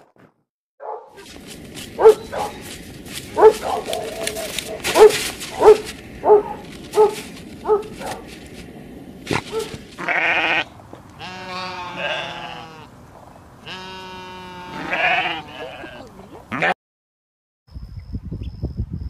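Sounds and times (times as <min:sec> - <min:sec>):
goat or sheep bleating: 0:10.0 - 0:13.0, 0:13.6 - 0:16.8.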